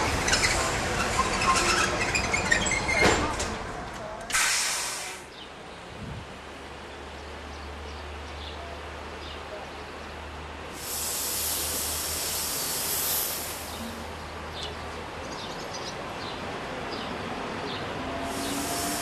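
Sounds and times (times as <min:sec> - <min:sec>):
loud hiss: 0:04.3 - 0:05.3, 0:10.7 - 0:14.2, 0:18.2 - 0:19.0
electric train humming: 0:16.4 - 0:19.0.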